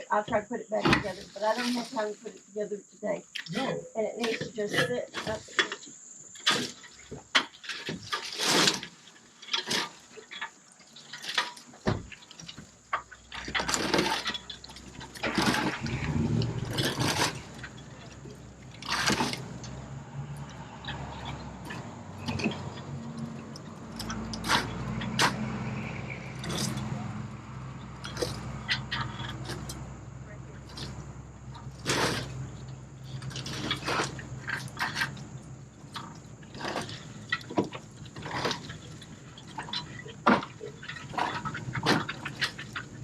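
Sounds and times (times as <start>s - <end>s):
sharp knocks and clatter: 5.2s - 30.0s, 30.6s - 43.0s
vehicle engine starting and running: 11.6s - 43.0s.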